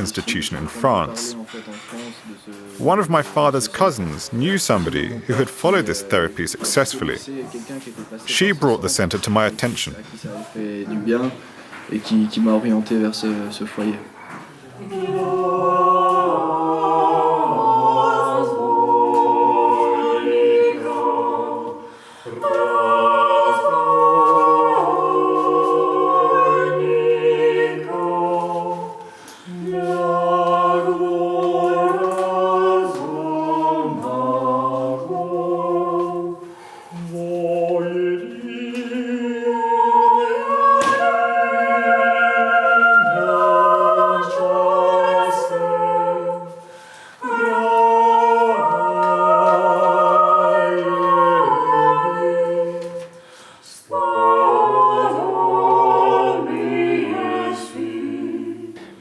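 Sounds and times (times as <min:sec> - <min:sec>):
choir singing a cappella: 0:14.6 - 0:59.0.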